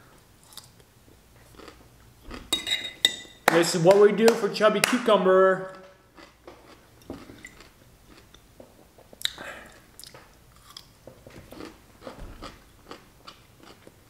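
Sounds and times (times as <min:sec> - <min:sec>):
crunching and chewing pickle: 0:00.4 - 0:02.0, 0:05.7 - 0:14.0.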